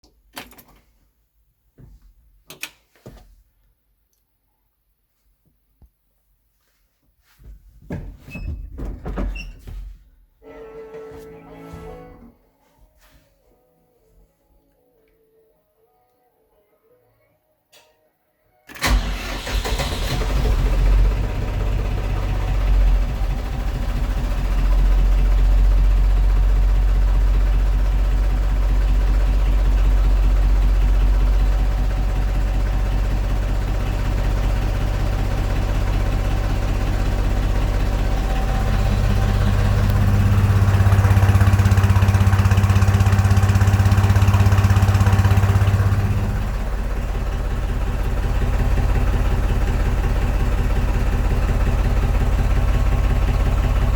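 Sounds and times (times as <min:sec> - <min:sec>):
tractor diesel engine starting: 0:10.4 - 0:12.4, 0:18.7 - 0:53.9
tractor engine idling and revving: 0:18.7 - 0:53.9.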